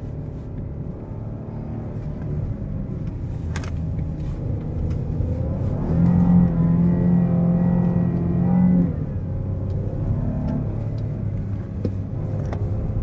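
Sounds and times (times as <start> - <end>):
car engine under throttle: 0.0 - 13.0.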